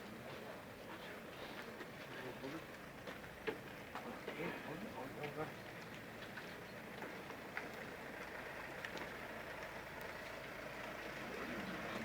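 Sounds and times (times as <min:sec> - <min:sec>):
motorcycle engines idling: 0:06.7 - 0:12.0.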